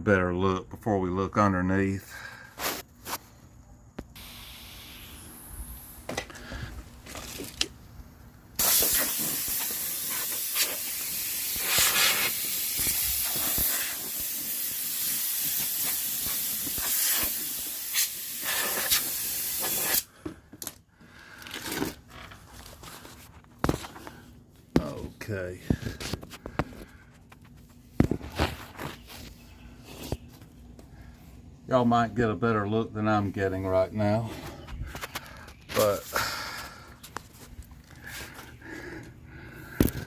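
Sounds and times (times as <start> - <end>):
compressed air hissing from blow gun: 4.2 - 6.0, 8.6 - 20.1.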